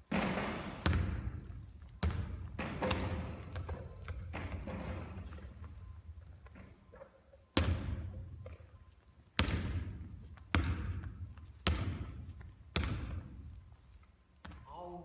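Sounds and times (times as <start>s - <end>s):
basketball bouncing on hard court: 0.0s - 5.8s, 7.6s - 8.6s, 9.3s - 13.6s, 14.4s - 14.6s.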